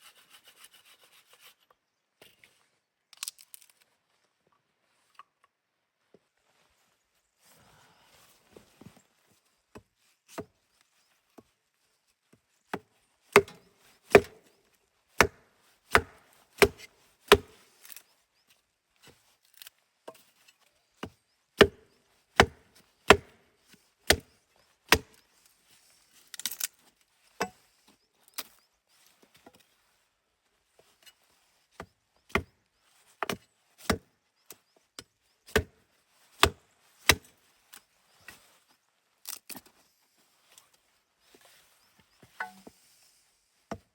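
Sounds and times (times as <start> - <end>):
blade chopping wood: 12.7 - 14.5, 15.2 - 17.6, 21.6 - 23.4, 24.1 - 24.3, 24.9 - 25.2, 35.5 - 35.8.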